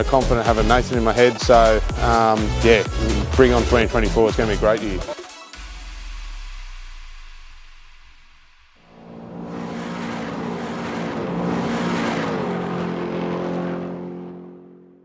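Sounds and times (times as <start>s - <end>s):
race car engine passing: 2.6s - 4.7s, 8.8s - 15.0s.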